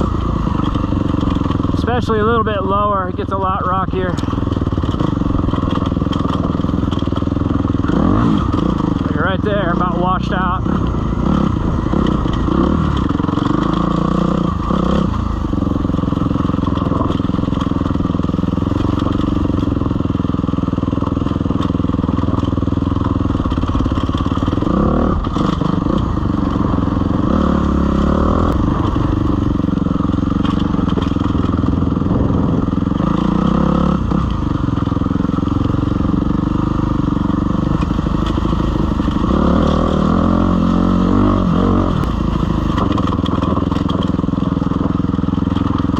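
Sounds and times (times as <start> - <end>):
dirt bike engine running: 0.0 - 45.9.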